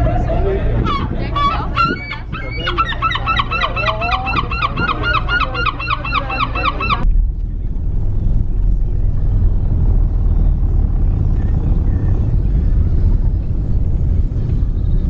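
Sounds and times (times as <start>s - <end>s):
steady low rumble: 0.0s - 15.0s
rapid repeated bird calls: 0.9s - 7.0s.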